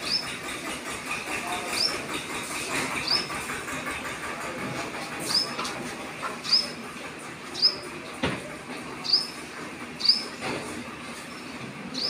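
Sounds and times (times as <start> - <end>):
steady background noise: 0.0 - 12.0
small bird chirping: 6.4 - 6.8, 9.0 - 9.4, 10.0 - 10.3.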